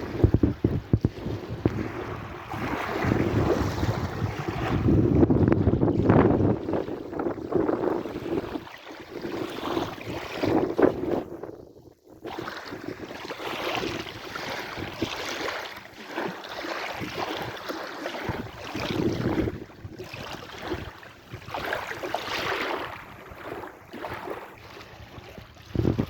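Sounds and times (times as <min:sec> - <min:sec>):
sea waves washing in: 0:00.0 - 0:11.2.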